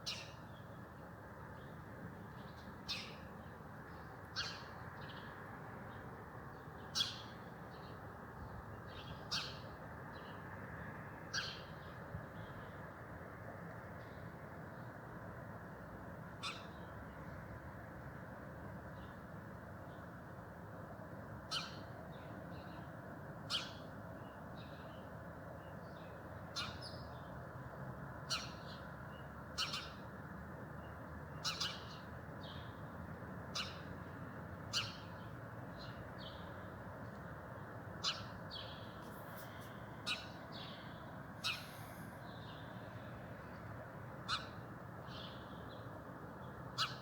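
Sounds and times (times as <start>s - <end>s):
low background noise: 0.0s - 47.0s
birds calling: 38.0s - 42.7s.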